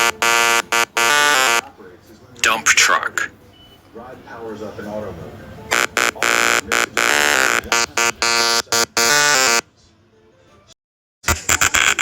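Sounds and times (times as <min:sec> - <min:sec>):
electronic beeping tune: 0:00.0 - 0:01.6, 0:05.7 - 0:09.6.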